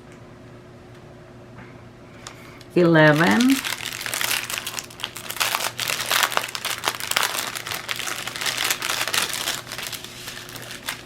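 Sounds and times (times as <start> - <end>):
plastic bags crinkling: 3.0 - 11.0.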